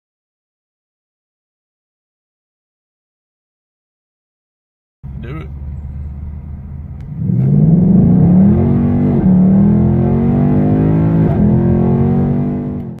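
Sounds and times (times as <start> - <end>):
car engine accelerating hard: 5.0 - 13.0.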